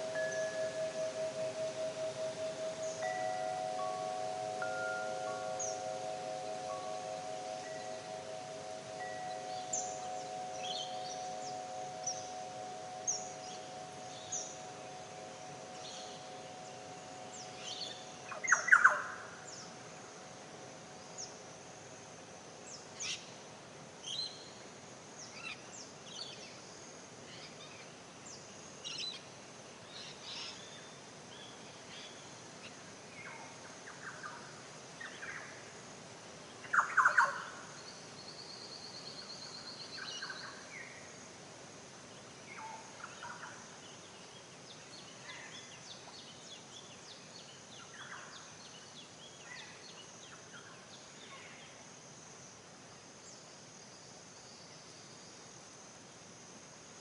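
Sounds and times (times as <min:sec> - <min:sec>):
birds chirping: 0:00.0 - 0:19.0
steady ringing tone: 0:00.0 - 0:19.3
lower bird calls: 0:00.0 - 0:19.6.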